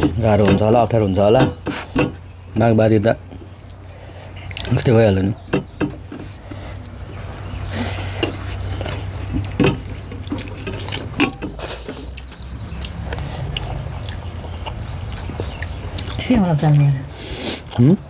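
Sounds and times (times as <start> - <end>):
wet chewing and mouth smacks: 4.4 - 4.9, 8.4 - 16.2.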